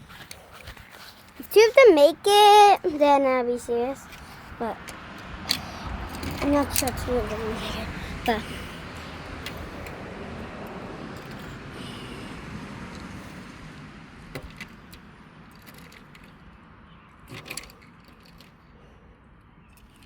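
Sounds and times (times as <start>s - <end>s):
toy trucks rolling and rattling: 0.0s - 11.7s, 14.4s - 16.5s, 17.2s - 18.7s.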